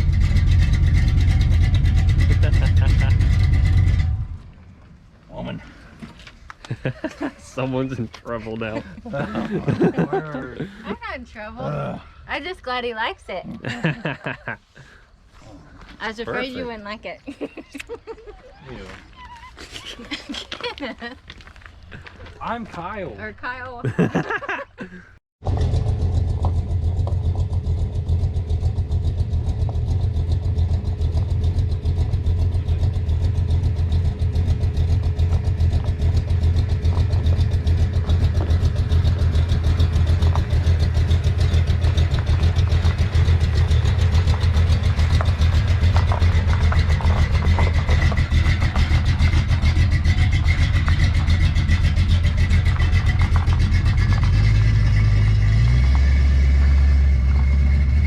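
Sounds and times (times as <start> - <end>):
pickup truck engine running: 0.0 - 4.6, 25.4 - 58.0.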